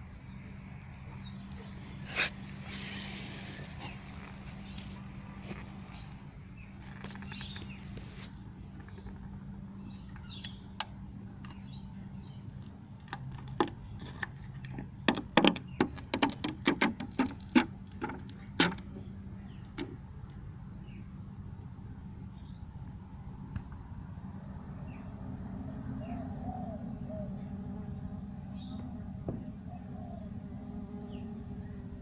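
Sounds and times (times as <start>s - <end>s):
steady low hum: 0.0s - 15.8s, 17.7s - 32.0s
sharp clicks and knocks: 10.1s - 19.0s.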